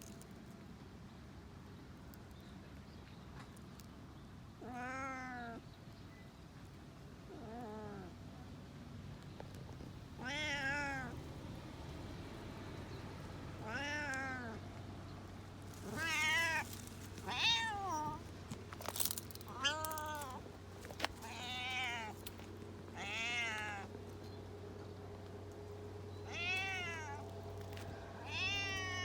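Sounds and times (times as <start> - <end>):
cat meowing: 10.2 - 11.2, 13.6 - 14.6, 15.8 - 18.2, 19.5 - 20.4, 21.2 - 22.2, 23.0 - 23.9, 26.2 - 27.2, 28.2 - 29.0.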